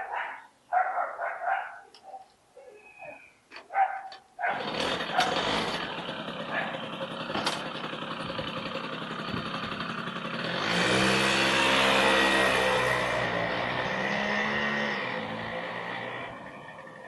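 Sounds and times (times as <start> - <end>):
moped engine running: 4.4 - 17.0.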